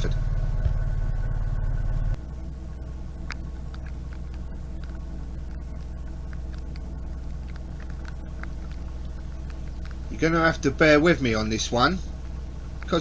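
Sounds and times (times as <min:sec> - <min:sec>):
diesel engine humming: 0:00.0 - 0:13.0
raindrops tapping on camera: 0:03.2 - 0:13.0.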